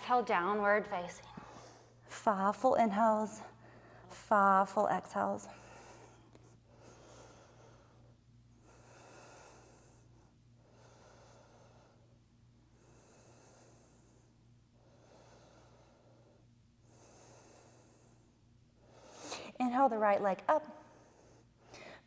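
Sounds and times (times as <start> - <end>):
slow deep breathing: 5.4 - 19.4.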